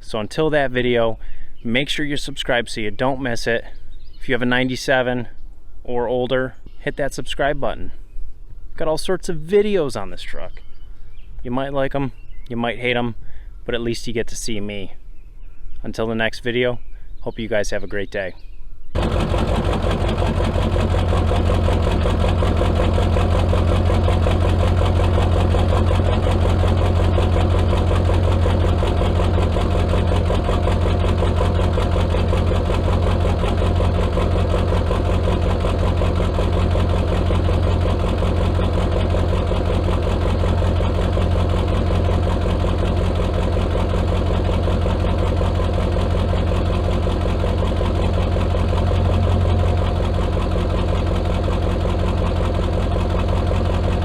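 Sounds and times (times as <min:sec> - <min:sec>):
diesel truck engine idling: 0:19.0 - 0:54.0.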